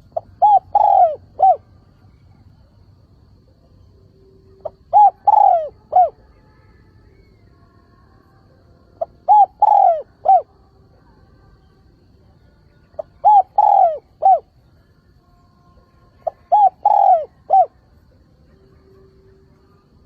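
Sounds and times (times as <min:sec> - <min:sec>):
dove cooing: 0:00.0 - 0:01.7, 0:04.5 - 0:06.2, 0:09.0 - 0:10.5, 0:13.0 - 0:14.6, 0:16.2 - 0:17.8.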